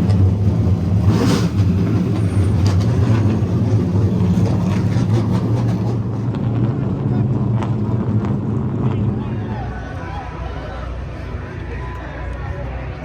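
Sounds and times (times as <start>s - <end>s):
race car engines running: 0.0s - 13.0s
rush of noise: 0.0s - 13.0s.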